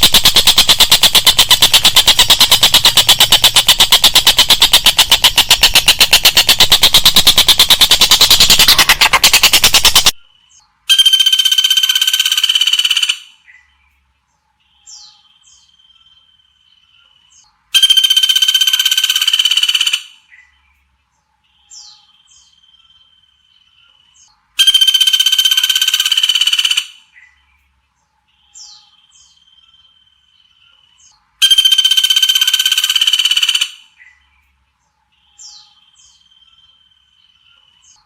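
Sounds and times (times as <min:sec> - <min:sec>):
buzzy trilling bird call: 0:00.0 - 0:10.2, 0:31.4 - 0:34.0.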